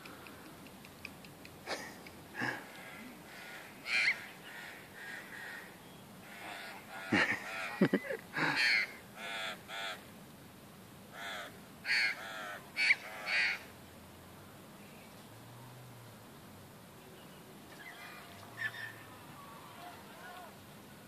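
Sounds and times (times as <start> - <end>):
crows cawing: 2.4 - 10.0, 11.1 - 13.7.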